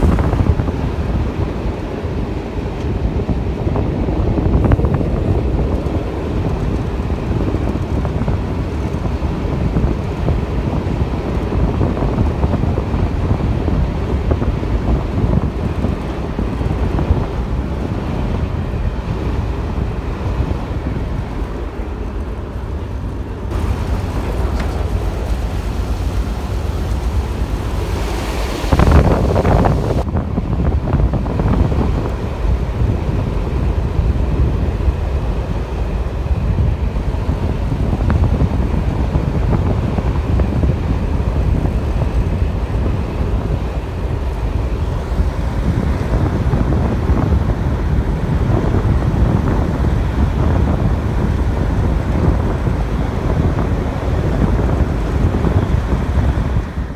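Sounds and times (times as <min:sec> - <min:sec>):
train wheels on track: 0:00.0 - 0:29.1
diesel engines running: 0:00.0 - 0:56.9
wind buffeting microphone: 0:00.0 - 0:56.9.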